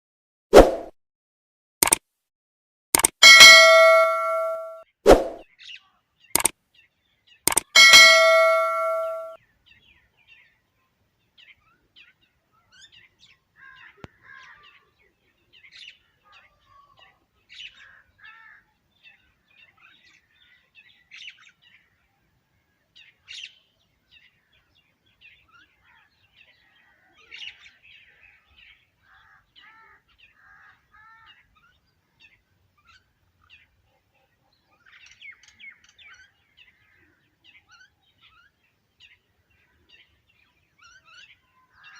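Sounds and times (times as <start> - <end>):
birds chirping and twittering: 3.2 - 4.8, 5.5 - 41.9
ringing metallic chime: 3.2 - 4.8, 7.5 - 9.4.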